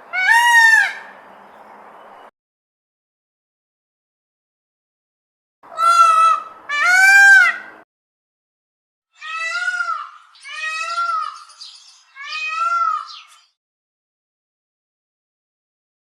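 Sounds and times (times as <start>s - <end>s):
peacock screaming calls: 0.0s - 1.2s, 5.7s - 7.8s, 9.2s - 13.5s.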